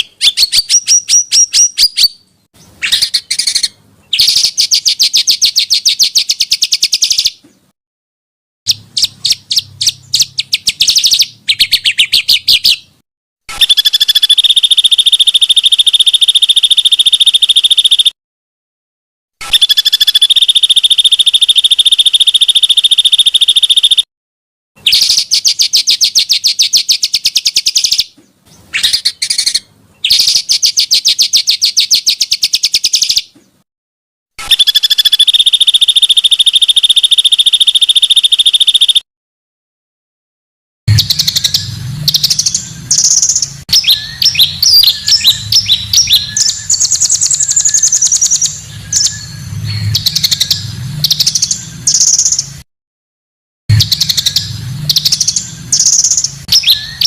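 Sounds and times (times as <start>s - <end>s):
songbird buzzy trills: 0.0s - 7.4s, 8.7s - 18.2s, 19.4s - 24.1s, 34.4s - 39.0s, 40.9s - 52.6s, 53.7s - 57.0s
bird chirps and twittering: 0.0s - 7.5s, 8.7s - 18.1s, 19.4s - 24.0s, 24.8s - 33.4s, 34.4s - 39.0s, 40.9s - 52.6s, 53.7s - 57.0s.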